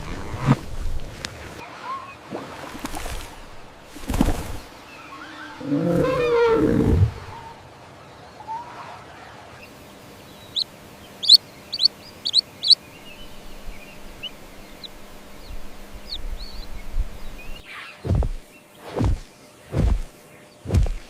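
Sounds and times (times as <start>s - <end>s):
baby chicks peeping: 10.3s - 17.6s.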